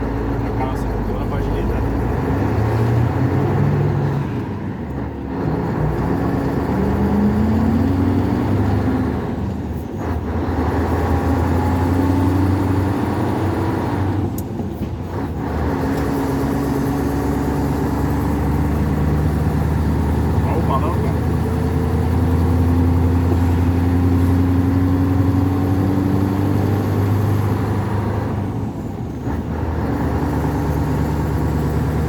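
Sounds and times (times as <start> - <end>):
truck engine pulling under load: 0.0 - 32.0.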